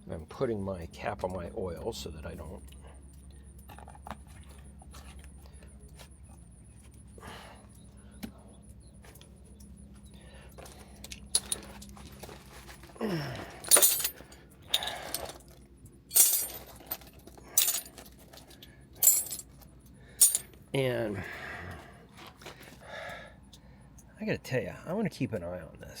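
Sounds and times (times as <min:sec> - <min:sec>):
metallic jingles and clinks: 0:10.5 - 0:12.9, 0:13.6 - 0:20.6.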